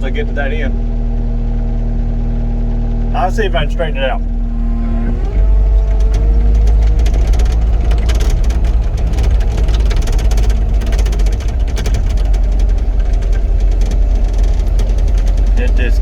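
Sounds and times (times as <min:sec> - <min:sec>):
diesel engine running: 0:00.0 - 0:16.0
rapid clattering: 0:05.7 - 0:16.0.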